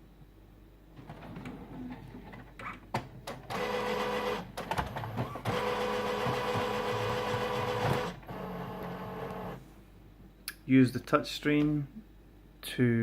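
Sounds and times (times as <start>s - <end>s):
printer motors whirring: 1.0s - 9.6s
printer clicks: 3.0s - 9.6s.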